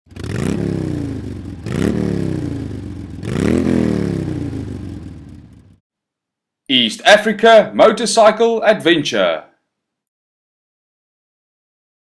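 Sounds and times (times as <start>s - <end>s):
motorcycle engine revving: 0.0s - 5.8s.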